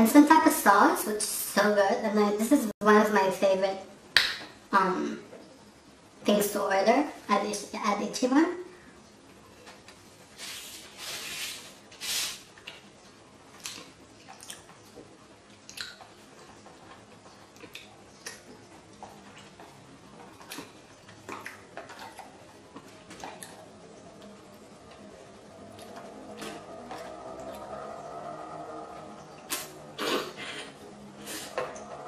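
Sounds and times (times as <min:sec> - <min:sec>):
person chewing with wet mouth sounds: 0:13.5 - 0:23.6
mouth smacks and clicks: 0:15.7 - 0:16.1, 0:29.5 - 0:30.3
rushes of noise: 0:24.0 - 0:32.0.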